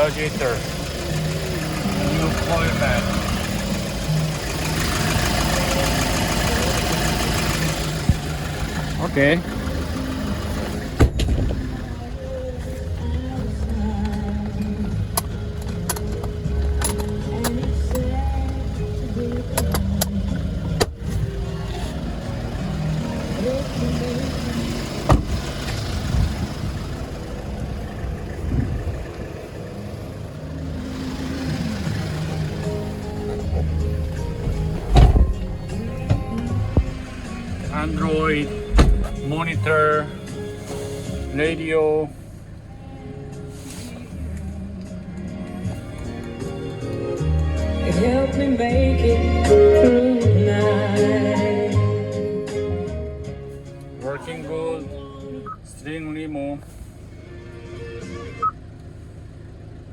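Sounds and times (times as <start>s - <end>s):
truck engine idling: 0.0s - 59.9s
dull low knocks: 9.5s - 12.5s, 31.8s - 39.7s.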